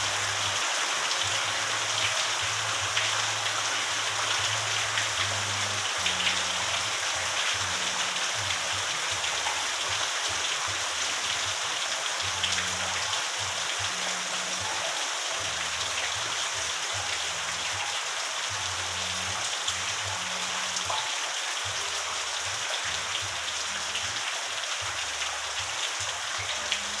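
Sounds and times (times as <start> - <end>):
raindrops ticking: 0.0 - 27.0
steady rain hiss: 0.0 - 27.0.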